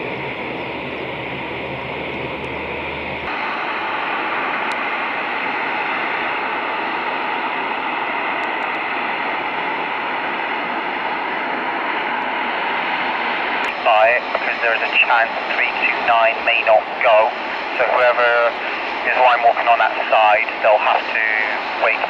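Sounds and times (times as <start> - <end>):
radio carrier hum: 0.0 - 7.0, 13.6 - 22.0.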